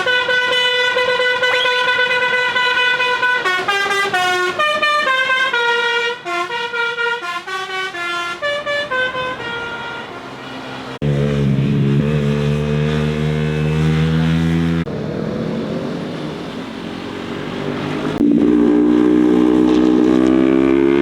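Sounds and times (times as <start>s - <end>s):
musical vehicle horn melody: 0.0s - 11.8s
motorcycle engine running: 11.0s - 15.1s.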